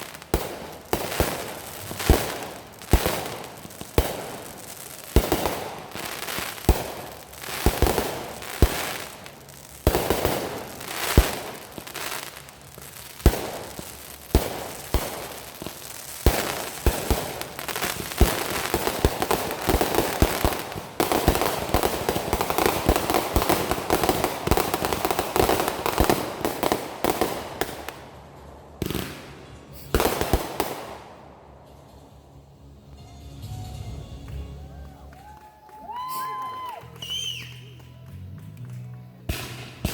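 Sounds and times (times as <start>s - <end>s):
fireworks banging: 0.0s - 32.2s, 39.2s - 39.9s
fireworks crackling: 0.0s - 32.2s, 33.5s - 39.9s.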